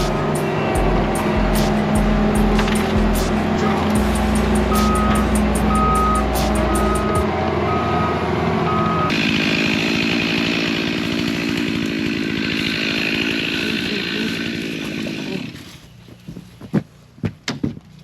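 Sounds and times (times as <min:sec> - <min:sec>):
two-stroke engine running: 0:00.0 - 0:15.8
vehicle backup alarm beeping: 0:04.7 - 0:09.2.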